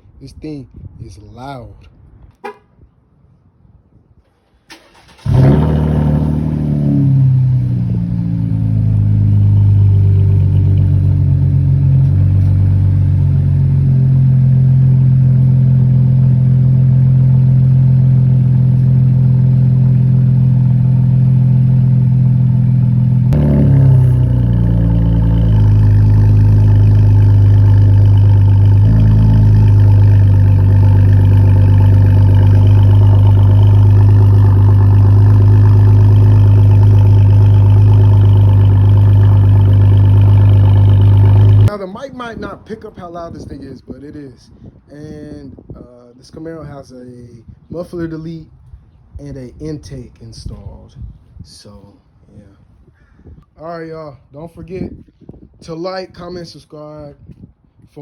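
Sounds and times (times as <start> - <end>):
car engine cold start and idle: 4.6 - 41.7.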